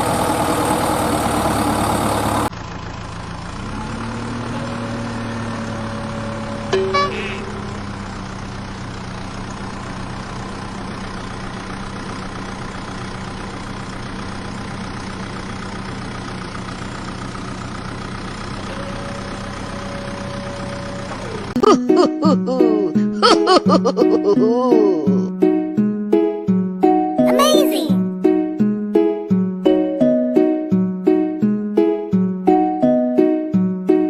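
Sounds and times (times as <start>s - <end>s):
engine idling: 0.0s - 24.0s
short falling tone: 4.6s - 8.1s
held higher tone: 6.1s - 7.9s.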